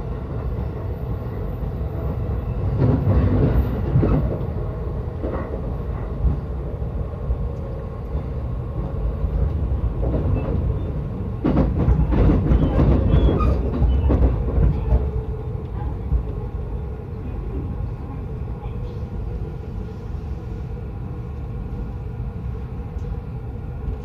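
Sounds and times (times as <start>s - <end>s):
train running rumble: 0.0s - 24.0s
wheels clattering on rails: 8.2s - 16.4s.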